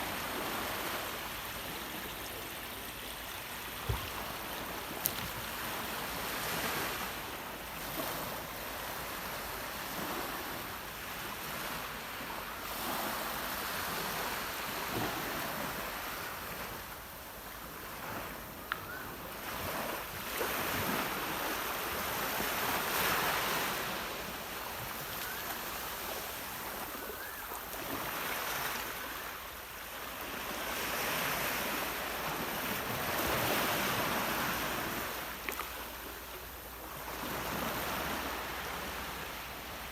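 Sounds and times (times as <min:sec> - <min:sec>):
sea waves washing ashore: 0:00.0 - 0:39.9.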